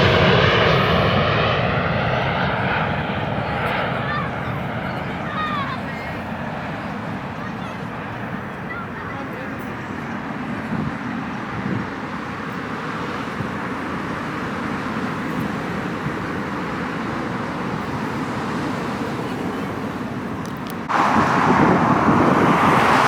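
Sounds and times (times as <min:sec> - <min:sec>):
engine roaring: 0:00.0 - 0:08.0, 0:15.1 - 0:23.0.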